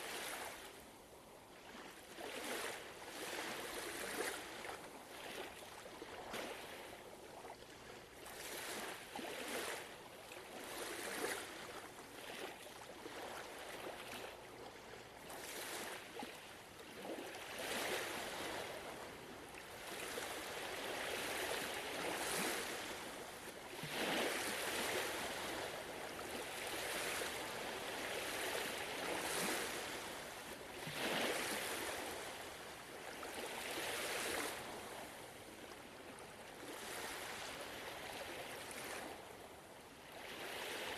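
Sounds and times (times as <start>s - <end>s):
ocean waves washing ashore: 17.0s - 40.9s.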